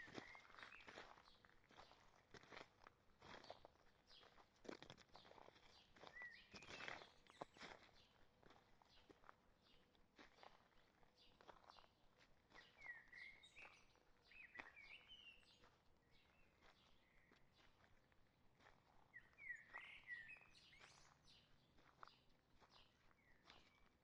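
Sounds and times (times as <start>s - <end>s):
footsteps on forest trail: 0.0s - 24.0s
bird singing warbling phrases: 12.6s - 15.5s, 19.2s - 21.2s.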